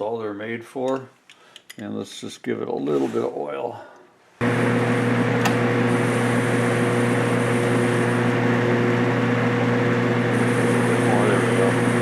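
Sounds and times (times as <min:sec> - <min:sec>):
metal lathe motor hum: 0:04.4 - 0:12.0.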